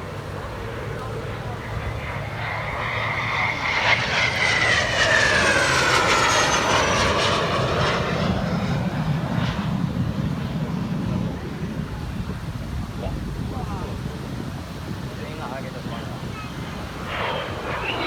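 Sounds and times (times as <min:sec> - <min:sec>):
aircraft engine whine passing: 0:00.0 - 0:12.2, 0:14.9 - 0:18.0.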